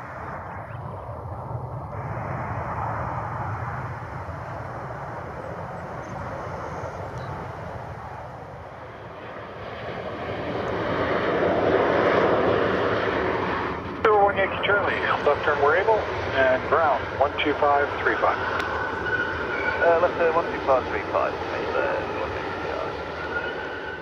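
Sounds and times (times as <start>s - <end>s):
airplane engines passing: 0.0s - 24.0s.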